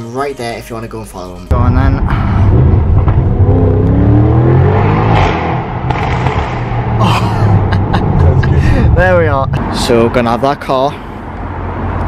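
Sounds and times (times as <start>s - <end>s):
car engine accelerating hard: 2.0s - 10.3s.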